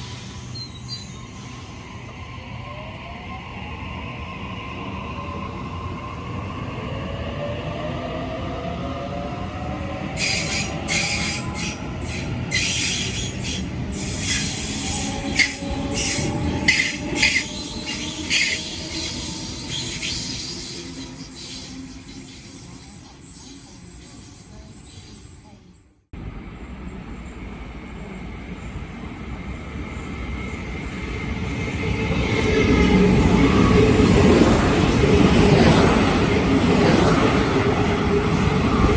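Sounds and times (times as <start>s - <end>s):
high hissing squeals: 0.0s - 2.5s, 10.2s - 25.8s
train rumbling: 0.0s - 38.9s.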